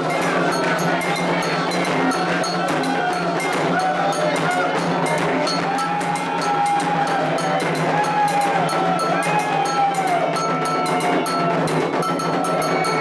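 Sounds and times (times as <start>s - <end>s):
hand drums playing a rhythm: 0.0s - 13.0s
metal bell: 0.0s - 13.0s
voices singing chant lines: 0.0s - 13.0s.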